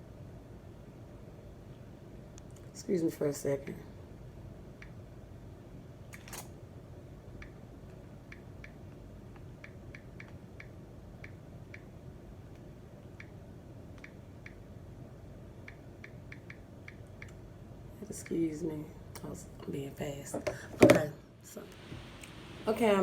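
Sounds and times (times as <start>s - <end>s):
faint light ticks: 14.0s - 14.6s.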